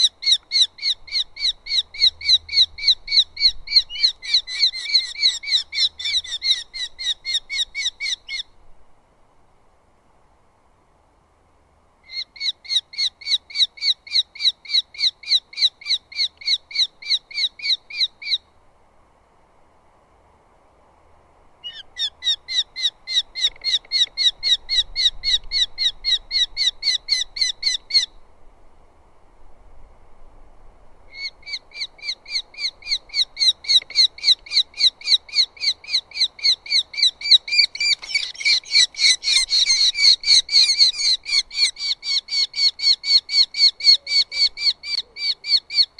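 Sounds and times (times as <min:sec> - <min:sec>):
falcon calling sharp repeated notes: 0:31.1 - 0:45.9.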